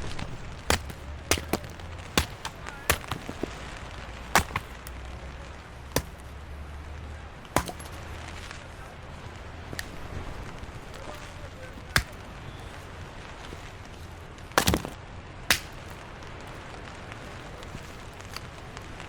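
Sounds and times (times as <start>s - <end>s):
sharp knocks: 0.7s - 3.5s, 4.4s - 5.0s, 6.0s - 6.4s, 7.6s - 8.1s.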